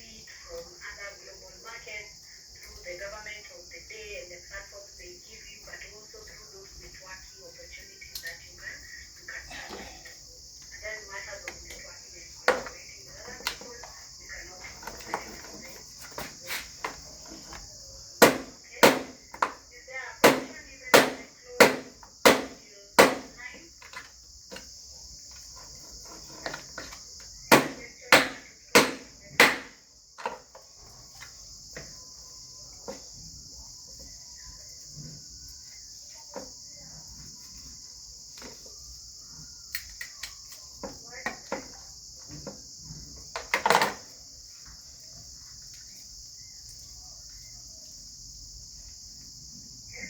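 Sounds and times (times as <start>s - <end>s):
crickets chirring: 0.0s - 50.0s
sharp knocks: 18.2s - 19.5s, 20.2s - 23.3s, 27.5s - 29.8s.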